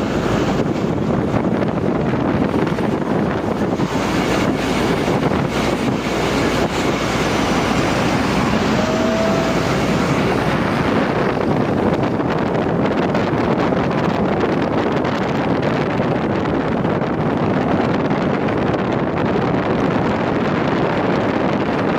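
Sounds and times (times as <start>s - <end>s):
truck engine and road noise: 0.0s - 21.9s
wind buffeting microphone: 0.0s - 21.9s
faint high tone: 7.8s - 11.4s.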